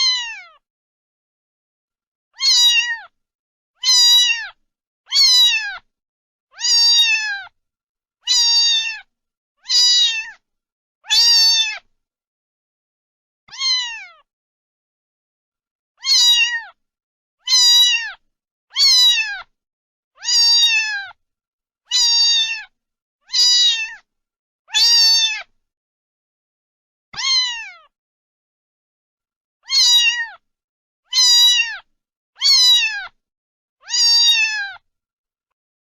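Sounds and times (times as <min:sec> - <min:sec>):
cat meowing: 0:00.0 - 0:00.6, 0:02.4 - 0:03.2, 0:03.8 - 0:05.9, 0:06.5 - 0:07.6, 0:08.2 - 0:10.4, 0:11.0 - 0:11.9, 0:13.5 - 0:14.3, 0:16.0 - 0:16.8, 0:17.4 - 0:19.5, 0:20.2 - 0:21.2, 0:21.9 - 0:22.7, 0:23.3 - 0:24.0, 0:24.7 - 0:25.5, 0:27.2 - 0:27.9, 0:29.6 - 0:30.4, 0:31.1 - 0:33.2, 0:33.8 - 0:34.8.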